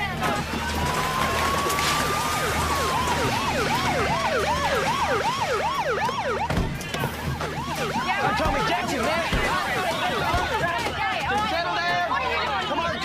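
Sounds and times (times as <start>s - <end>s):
gliding siren tone: 0.8s - 10.3s
siren yelping: 0.8s - 10.6s.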